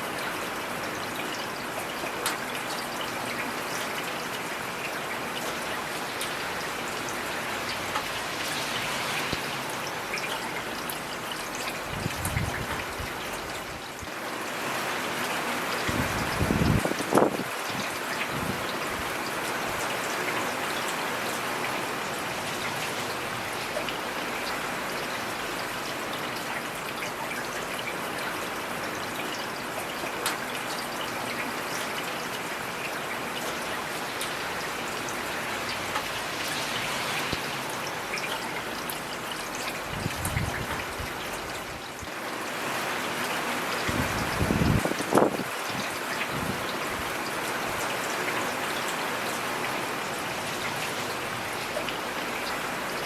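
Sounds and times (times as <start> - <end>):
heavy rain hissing: 6.4 - 10.2, 34.0 - 47.7.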